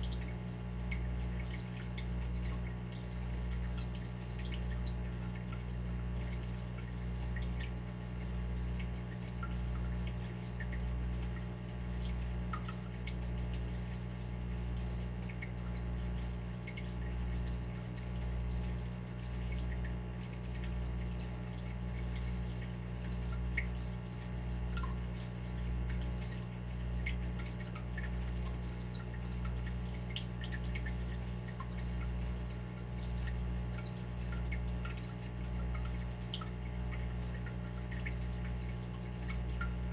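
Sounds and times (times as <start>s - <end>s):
water dripping and trickling: 0.0s - 39.9s
steady low hum: 32.4s - 39.9s.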